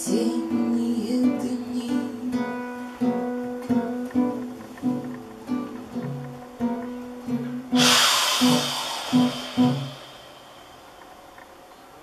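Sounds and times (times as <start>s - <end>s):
person singing: 0.0s - 2.7s
acoustic guitar picking: 0.0s - 11.6s
loud hiss of noise: 2.6s - 12.0s.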